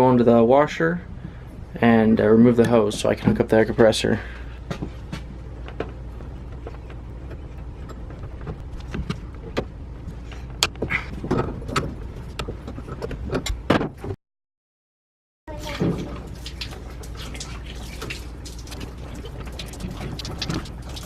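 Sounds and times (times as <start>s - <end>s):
steady low hum: 0.0s - 14.1s.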